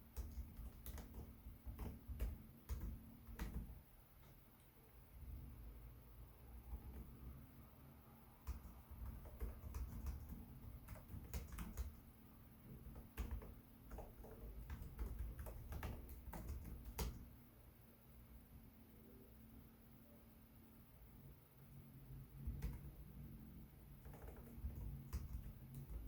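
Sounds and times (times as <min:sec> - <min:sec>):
laptop keyboard typing: 0:00.0 - 0:04.6, 0:06.6 - 0:07.4, 0:08.4 - 0:17.4, 0:22.4 - 0:23.2, 0:23.9 - 0:26.0.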